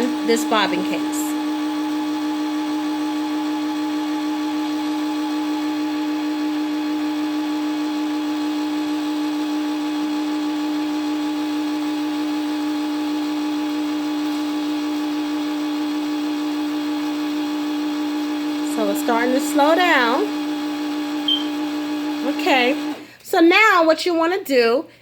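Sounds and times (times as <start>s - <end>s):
sewing machine motor whine: 0.0s - 6.1s, 18.5s - 23.0s.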